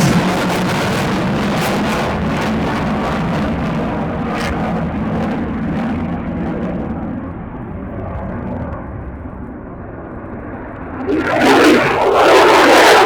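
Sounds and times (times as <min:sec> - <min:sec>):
fighter jet roaring: 0:00.0 - 0:04.2, 0:11.0 - 0:13.0.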